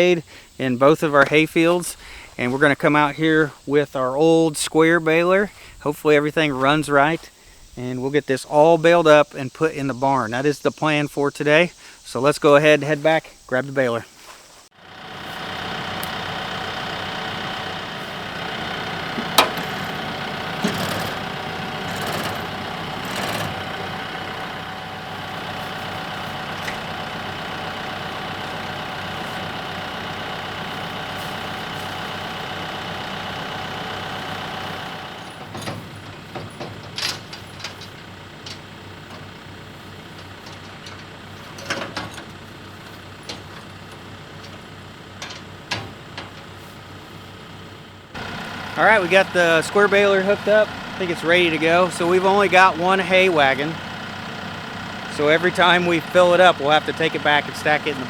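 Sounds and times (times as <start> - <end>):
tractor diesel engine running: 0.0 - 7.2, 14.7 - 58.0
metal clanks: 15.6 - 46.7.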